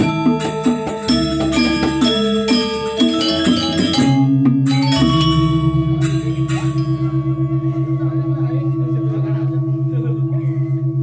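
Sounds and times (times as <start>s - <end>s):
deep gong ringing: 5.0s - 11.0s.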